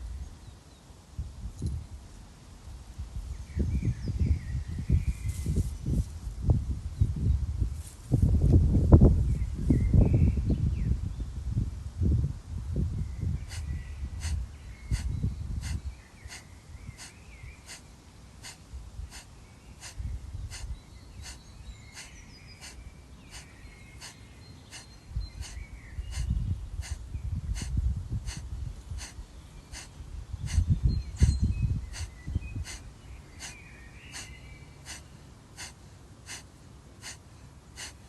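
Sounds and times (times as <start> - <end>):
forceful nasal exhalations: 13.4 - 38.0.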